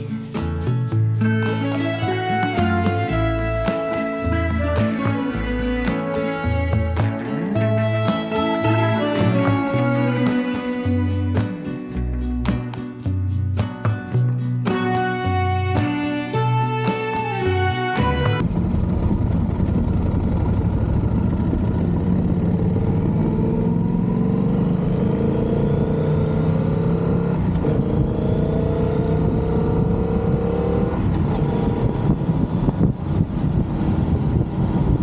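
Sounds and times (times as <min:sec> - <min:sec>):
motorcycle engine accelerating: 0:18.2 - 0:35.0.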